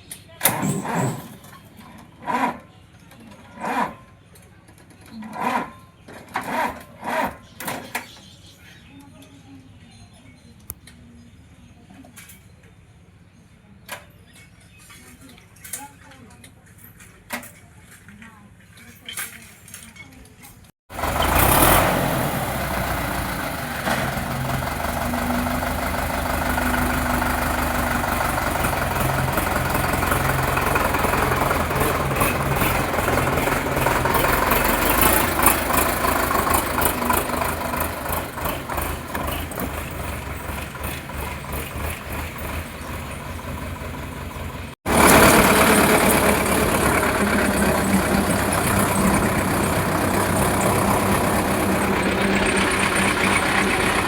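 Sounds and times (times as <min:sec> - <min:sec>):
tractor diesel engine running: 0:20.9 - 0:54.0.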